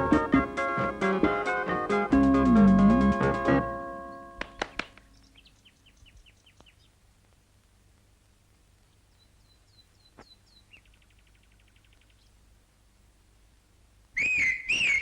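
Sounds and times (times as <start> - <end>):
bird chirps: 4.1 - 7.0, 8.9 - 12.4, 14.2 - 15.0
faint clicks: 6.5 - 8.6
bird trill: 14.2 - 15.0.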